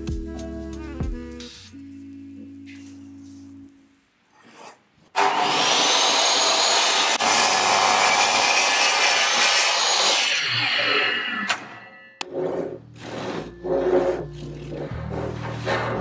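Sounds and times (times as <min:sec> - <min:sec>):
electric saw cutting wood: 0:05.2 - 0:12.3.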